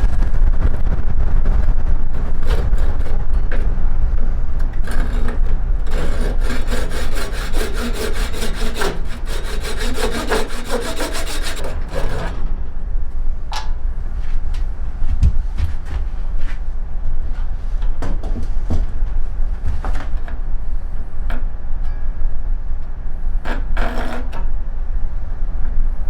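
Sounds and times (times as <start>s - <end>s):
low rumble: 0.0s - 10.2s, 11.0s - 17.7s
hand tool scraping wood: 4.6s - 12.4s.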